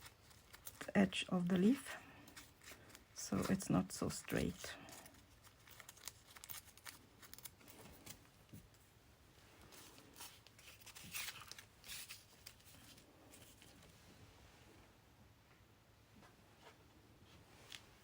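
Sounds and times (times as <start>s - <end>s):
paper tearing: 0.0s - 0.9s, 5.0s - 8.2s, 9.8s - 13.7s.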